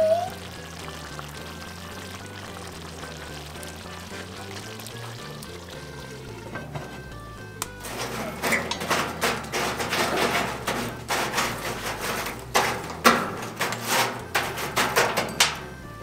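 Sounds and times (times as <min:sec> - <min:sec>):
metal poker raking coals: 0:02.4 - 0:16.0.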